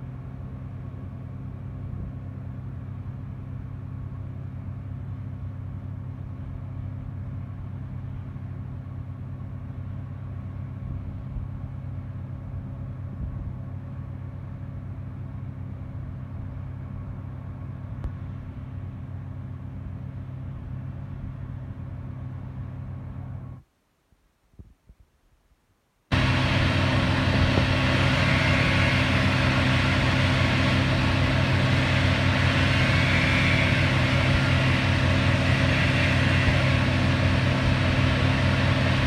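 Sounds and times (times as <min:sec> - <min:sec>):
large engine running: 0:26.1 - 0:39.0.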